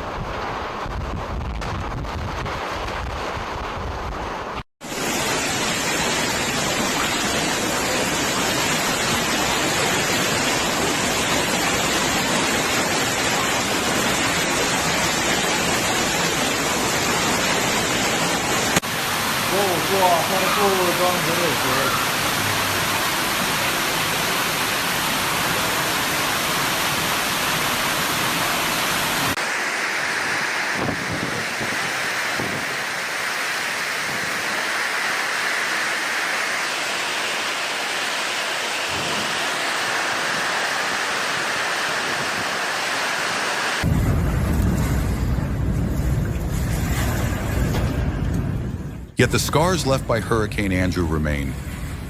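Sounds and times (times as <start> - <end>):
heavy rain: 0.0 - 52.0
hurricane wind: 0.0 - 52.0
deep low rumble: 43.8 - 49.3.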